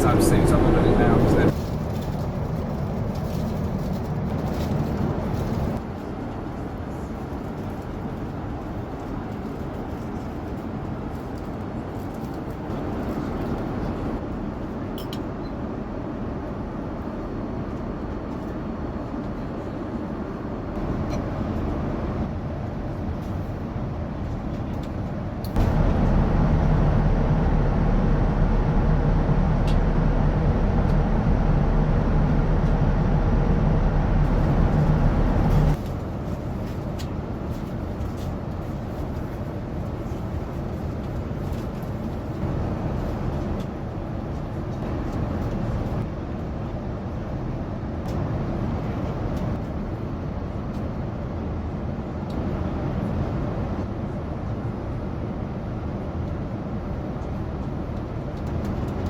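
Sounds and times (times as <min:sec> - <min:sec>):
steady low hum: 0:00.0 - 0:05.8, 0:24.8 - 0:50.2
airplane cabin drone: 0:00.0 - 0:59.0.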